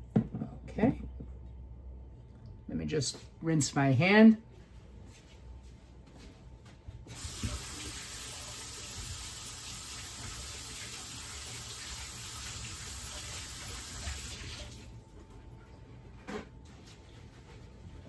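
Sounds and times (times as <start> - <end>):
tap water running into sink: 7.2 - 14.8.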